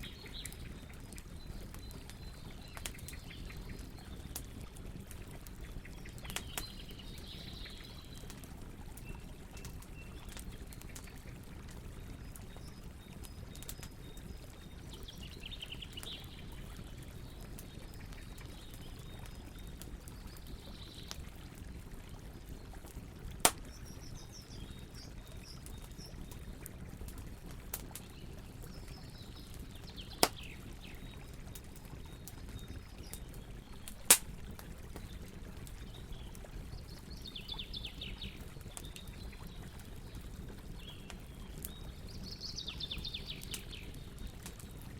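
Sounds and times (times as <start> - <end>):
campfire crackling: 0.0 - 44.9
fire sharp pops: 6.2 - 6.7, 23.4 - 24.0, 30.1 - 30.6, 33.9 - 35.1.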